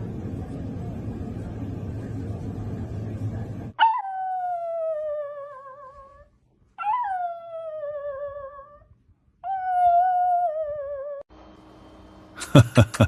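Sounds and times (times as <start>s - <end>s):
low rumbling noise: 0.0s - 3.8s.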